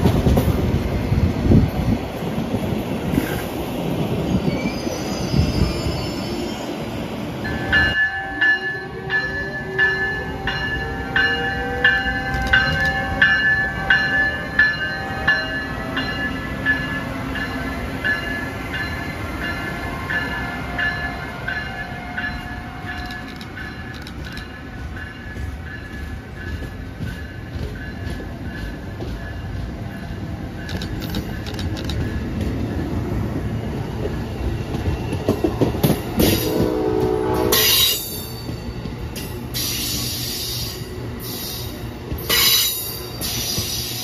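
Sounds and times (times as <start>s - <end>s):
train rumbling on tracks: 0.0s - 44.0s
sharp clicks: 23.0s - 24.5s, 30.7s - 32.1s.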